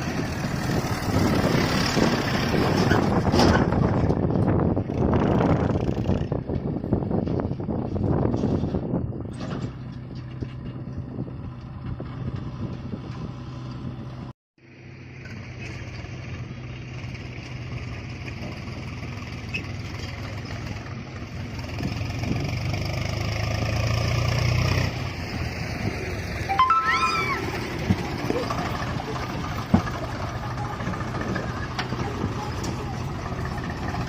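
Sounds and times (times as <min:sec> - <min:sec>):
road and wind noise: 0:00.0 - 0:34.0
tractor engine droning: 0:24.9 - 0:34.0.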